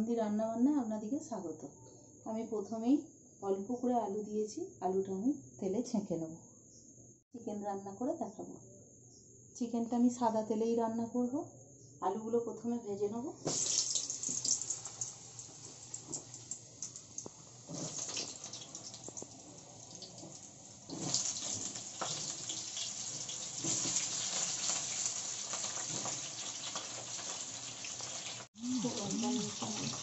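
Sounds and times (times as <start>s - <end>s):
potatoes deep-frying in oil: 13.5s - 30.0s.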